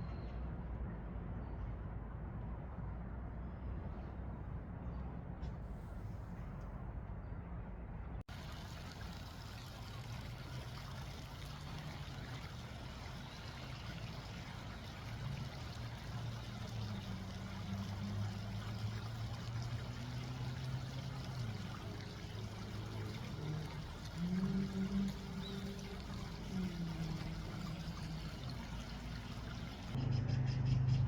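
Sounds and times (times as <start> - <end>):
running water: 8.3 - 30.0.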